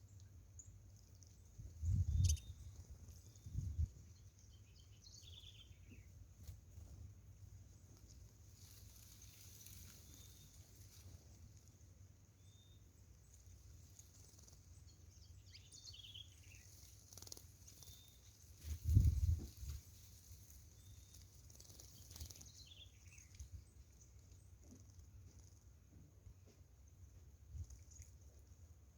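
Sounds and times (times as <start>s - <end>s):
finch chirping: 1.8s - 3.9s, 14.2s - 18.2s.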